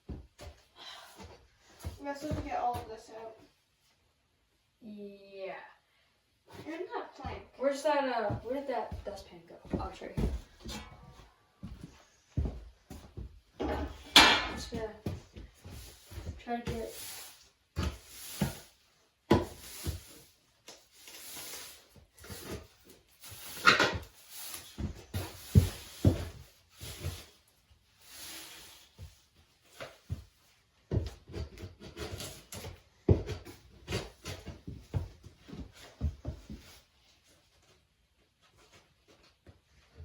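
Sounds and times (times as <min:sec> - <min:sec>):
debris swept into dustpan: 0:15.6 - 0:18.8, 0:19.4 - 0:27.4.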